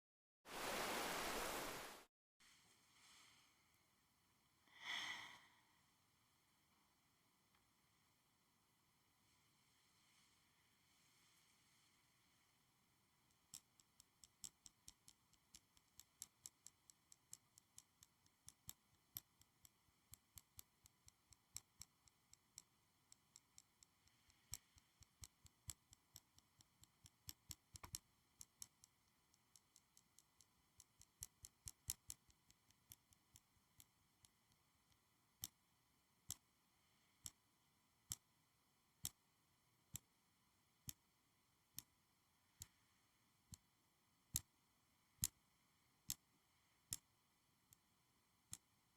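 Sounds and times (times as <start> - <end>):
clicks and taps: 13.2 - 35.6, 36.2 - 36.5, 37.2 - 38.3, 45.2 - 45.4.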